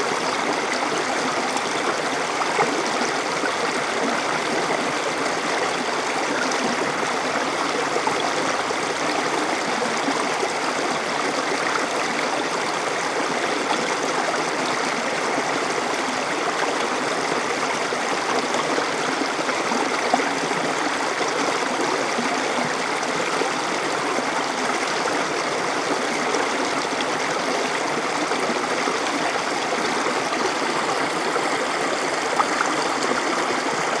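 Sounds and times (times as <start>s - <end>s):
water splashing over rocks: 25.9s - 34.0s.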